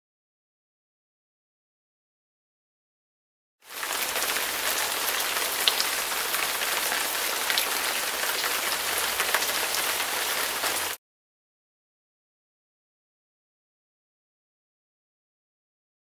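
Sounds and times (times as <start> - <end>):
rain on a hard surface: 3.6 - 11.0.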